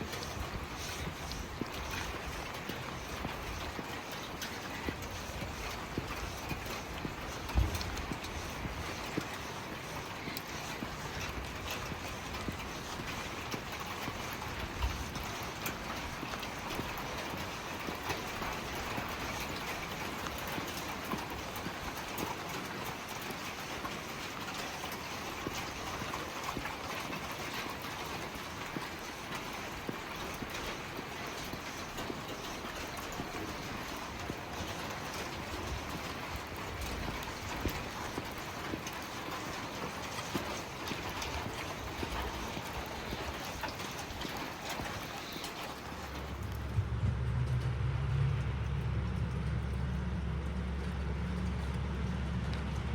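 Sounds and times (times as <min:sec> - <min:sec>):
drips and ticks: 0:00.0 - 0:52.9
steady rain hiss: 0:00.0 - 0:52.9
low steady hum: 0:45.8 - 0:52.9.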